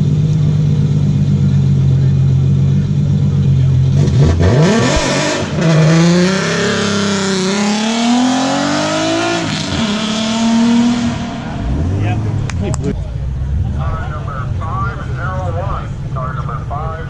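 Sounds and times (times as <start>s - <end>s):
car engine revving hard: 3.7s - 14.0s.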